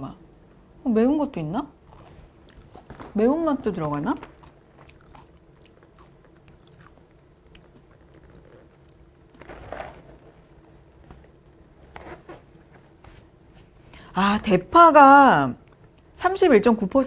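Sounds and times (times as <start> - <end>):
crunchy chewing of cereal: 1.8 - 3.1, 4.2 - 10.9.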